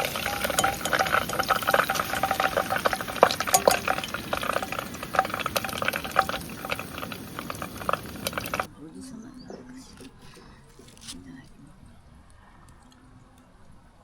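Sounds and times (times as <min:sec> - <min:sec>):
food sizzling in hot oil: 0:00.0 - 0:08.7
oil crackling pops: 0:00.0 - 0:08.7.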